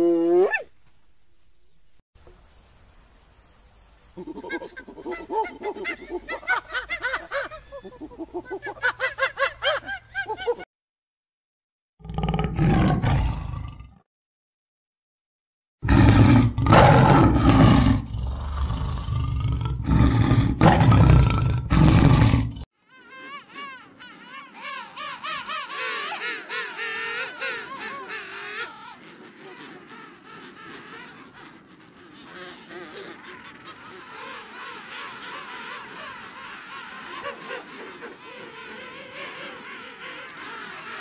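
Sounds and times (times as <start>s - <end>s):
penguin colony calling: 4.2s - 10.6s, 22.8s - 41.0s
rapid wavering animal calls: 4.2s - 10.6s, 22.8s - 41.0s
big cat roaring: 12.0s - 14.0s, 15.8s - 22.6s.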